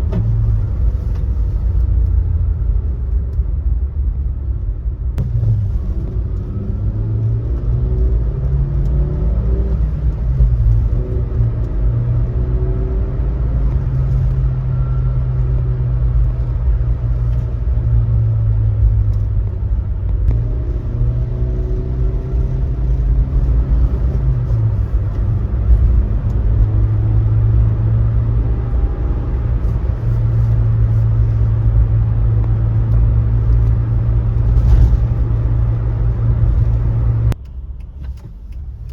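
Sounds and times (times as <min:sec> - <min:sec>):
road rumble: 0:00.0 - 0:38.9
van engine droning: 0:00.0 - 0:38.9.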